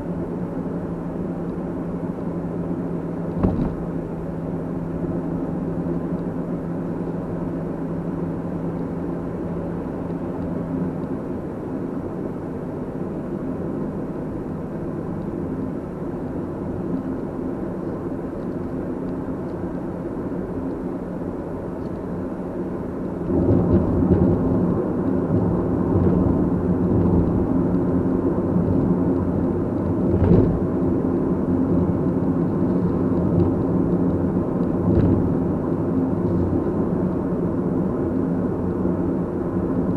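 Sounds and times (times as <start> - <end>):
car engine hum and road noise: 0.0 - 39.9
short thump: 3.4 - 3.9.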